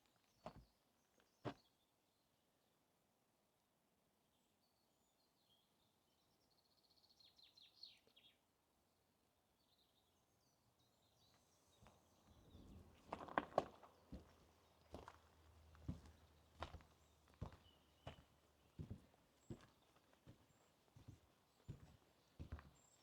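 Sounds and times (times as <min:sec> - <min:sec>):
faint forest ambience: 0:00.0 - 0:23.0
footsteps on forest path: 0:11.8 - 0:23.0.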